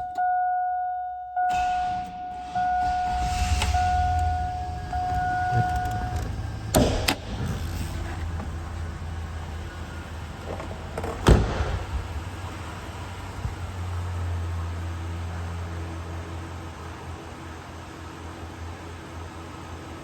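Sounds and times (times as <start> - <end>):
dash warning chime: 0.0 - 6.8
truck engine idling: 1.5 - 20.0
sharp knocks: 3.0 - 7.5.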